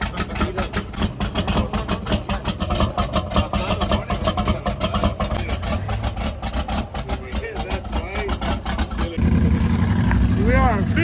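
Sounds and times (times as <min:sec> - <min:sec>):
car engine pulsing: 0:00.0 - 0:11.0.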